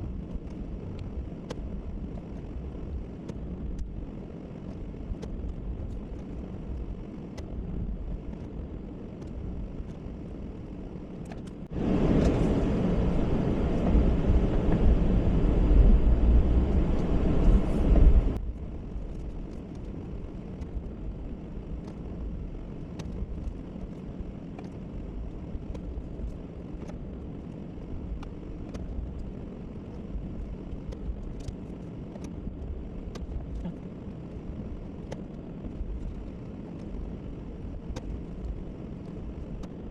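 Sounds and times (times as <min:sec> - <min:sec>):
truck engine running: 0:11.7 - 0:18.4.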